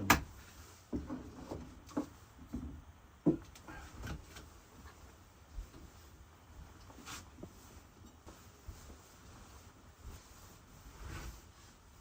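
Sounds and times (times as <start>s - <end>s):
light knocks and taps: 0.9s - 4.5s.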